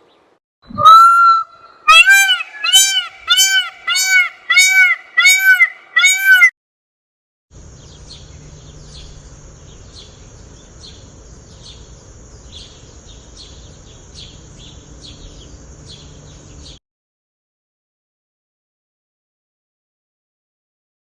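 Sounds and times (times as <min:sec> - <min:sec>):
bird chirping: 0:00.0 - 0:06.5, 0:07.8 - 0:16.8
loud honk: 0:00.7 - 0:06.5.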